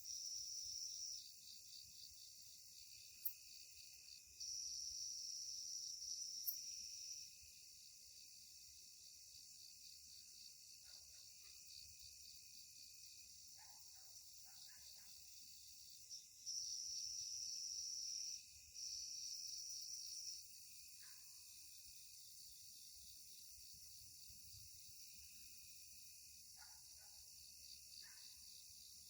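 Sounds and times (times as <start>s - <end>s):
crickets droning: 0.0s - 29.0s
high insect trill: 0.0s - 29.0s
thin steady tone: 3.0s - 7.8s.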